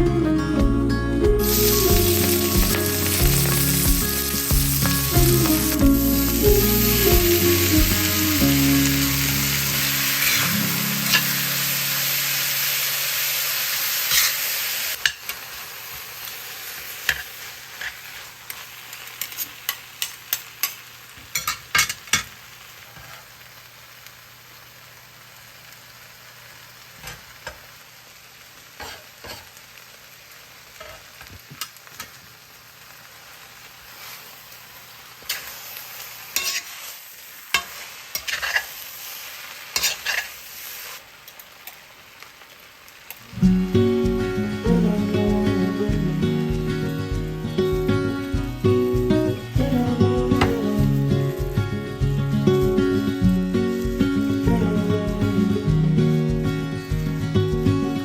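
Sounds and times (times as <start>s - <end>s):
background music: 0.0s - 12.3s, 43.4s - 58.0s
food sizzling in a pan: 1.2s - 58.0s
utensil stirring against pan: 1.7s - 11.4s, 35.2s - 39.1s, 39.7s - 40.9s.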